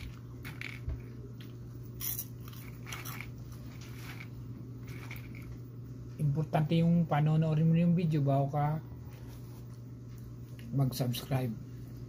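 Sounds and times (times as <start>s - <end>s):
crunchy chewing: 0.0s - 5.6s
steady low hum: 0.0s - 12.0s.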